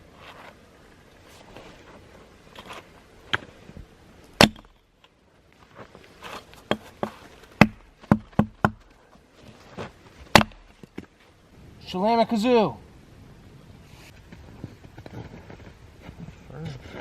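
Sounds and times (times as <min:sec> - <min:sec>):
axe chopping wood: 0:04.4 - 0:04.8, 0:06.6 - 0:08.9, 0:10.3 - 0:11.0.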